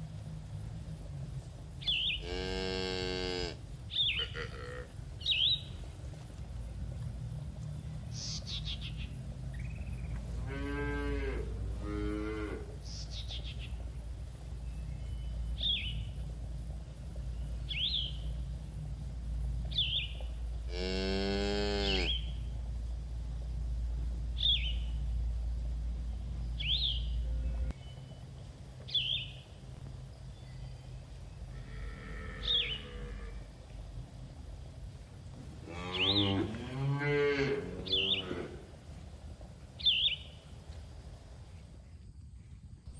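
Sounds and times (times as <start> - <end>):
low steady rumble: 0.0 - 2.8, 3.5 - 42.9
cattle mooing: 2.2 - 3.6, 10.4 - 12.8, 35.6 - 38.7.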